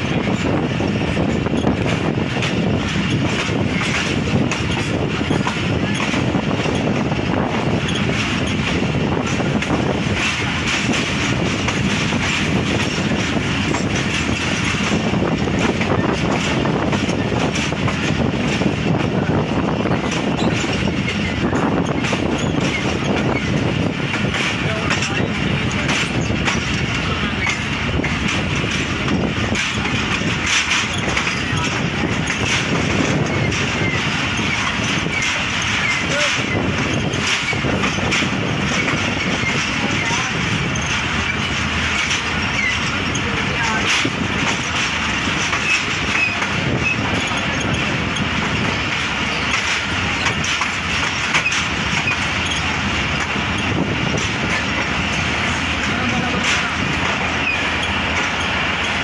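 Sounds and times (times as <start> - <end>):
train coaches rumbling on track: 0.0 - 59.0
faint voices: 24.3 - 37.2, 39.0 - 49.6, 54.2 - 58.9.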